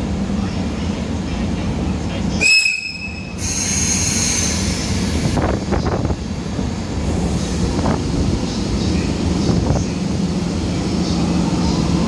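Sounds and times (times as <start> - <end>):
electric train rumbling: 0.0 - 12.0
high wheel squeal with hiss: 2.4 - 5.4.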